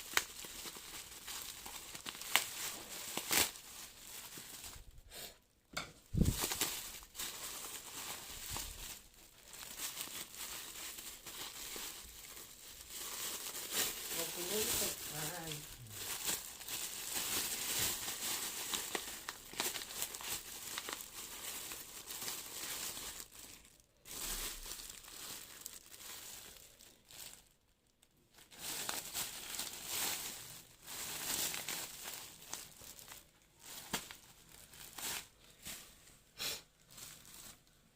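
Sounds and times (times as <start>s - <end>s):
packaging tearing: 0.0s - 4.8s, 6.2s - 27.3s
packaging crinkling: 0.0s - 5.0s, 6.1s - 36.0s, 36.8s - 37.9s.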